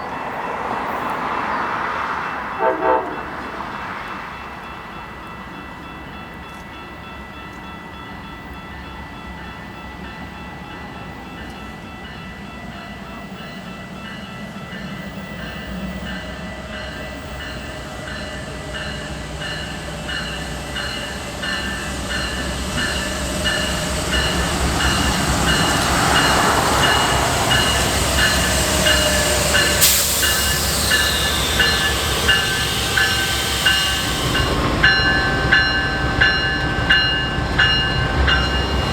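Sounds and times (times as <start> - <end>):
train rumble: 0.0 - 38.9
pulsing high ringing: 8.0 - 38.9.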